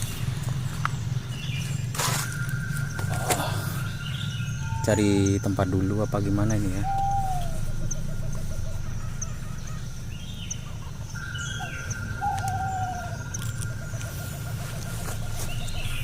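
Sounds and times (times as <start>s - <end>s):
steady low hum: 0.0s - 16.0s
long steady high tone: 2.4s - 16.0s
fast trilling bird call: 6.5s - 14.2s.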